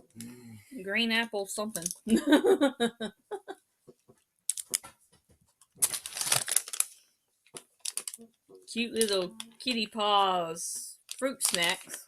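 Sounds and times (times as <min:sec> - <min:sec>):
plastic packaging crinkling: 0:04.5 - 0:04.9, 0:05.7 - 0:08.3, 0:09.0 - 0:09.8, 0:11.1 - 0:12.0.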